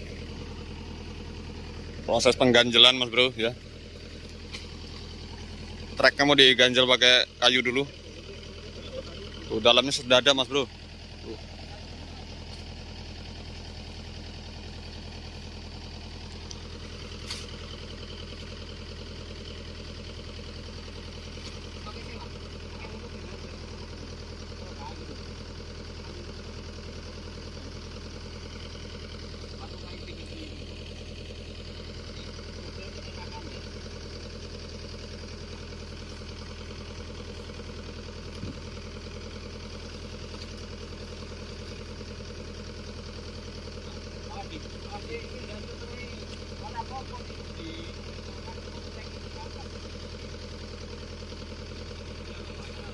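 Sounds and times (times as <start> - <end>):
diesel engine idling: 0.0 - 52.9.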